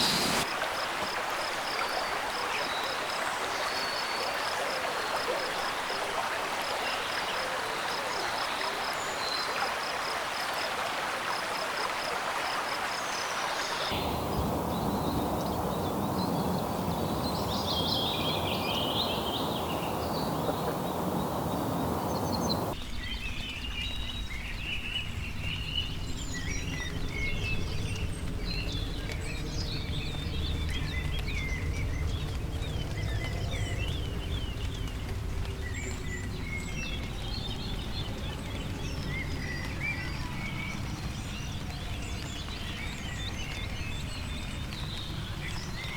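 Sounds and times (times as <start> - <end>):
bird calls: 0.0 - 0.4, 13.9 - 22.8
bird chirps: 0.0 - 0.4, 13.9 - 22.8
high pipping call: 0.0 - 0.4, 13.9 - 22.8
rushing water: 0.0 - 22.8, 26.4 - 45.9
low rumble: 14.0 - 22.8.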